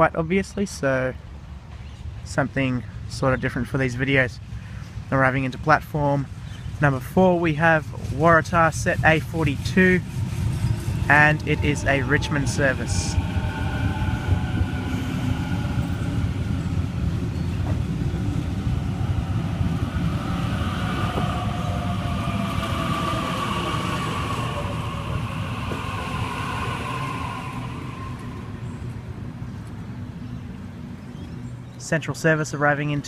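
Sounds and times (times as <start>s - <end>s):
train wheels rumbling: 5.0s - 30.2s
electric traction whine: 9.2s - 29.8s.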